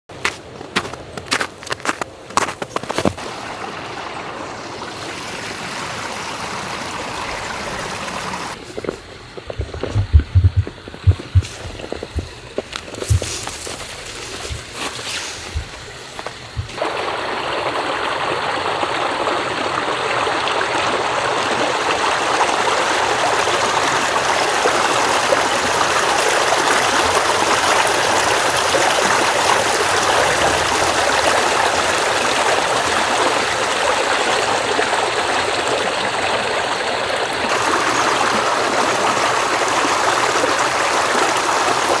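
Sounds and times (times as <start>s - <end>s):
river rushing and splashing: 3.0s - 8.6s, 37.2s - 42.0s.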